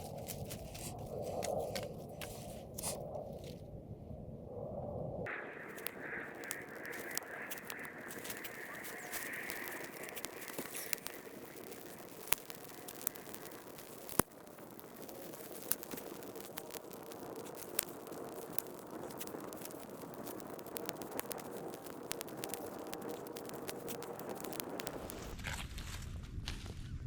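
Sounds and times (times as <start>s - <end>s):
kindling fire crackling: 0.0s - 26.9s
steady hiss: 5.3s - 25.4s.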